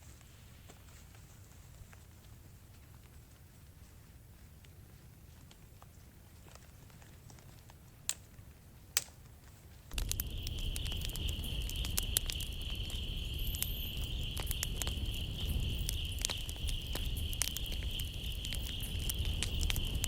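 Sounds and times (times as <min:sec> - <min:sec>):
soft rain patter: 0:00.0 - 0:20.0
campfire crackling and popping: 0:04.7 - 0:20.0
steady high-pitched whine: 0:09.9 - 0:20.0.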